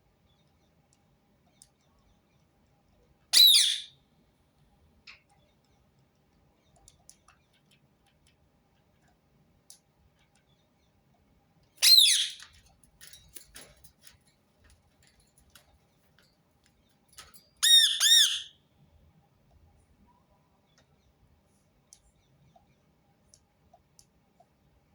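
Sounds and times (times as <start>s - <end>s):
parakeet calling harshly: 3.3s - 3.9s, 11.8s - 12.4s, 17.6s - 18.6s
faint clicks: 5.1s - 10.6s, 21.7s - 24.6s.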